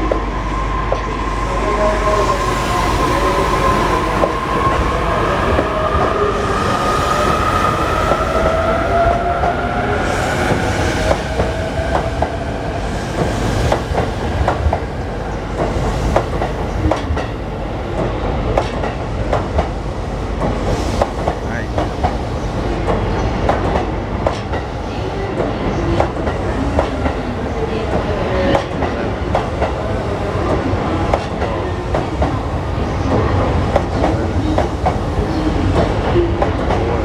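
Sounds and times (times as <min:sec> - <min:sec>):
train wheels clicking over rail joints: 0:09.4 - 0:27.2.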